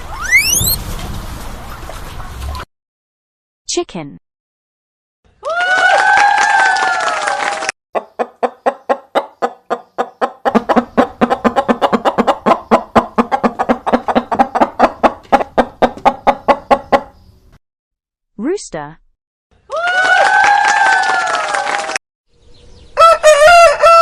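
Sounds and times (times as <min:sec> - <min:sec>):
chicken squawk: 0:00.0 - 0:00.8, 0:08.0 - 0:17.2, 0:23.0 - 0:24.0
chickens clucking: 0:08.0 - 0:17.3.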